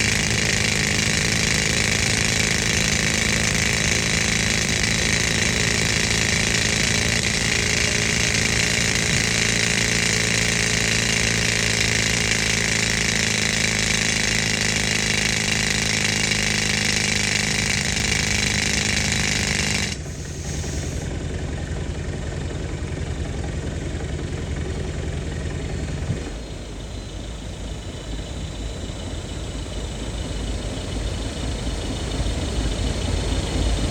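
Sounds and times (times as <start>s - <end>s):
pneumatic rock drill: 0.0s - 21.4s
air compressor engine running: 0.0s - 33.9s.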